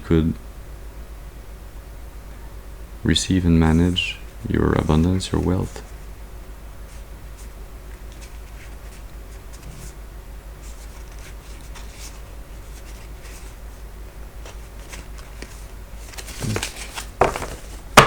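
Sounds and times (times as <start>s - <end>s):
cards being shuffled: 10.6s - 13.6s, 14.4s - 18.0s.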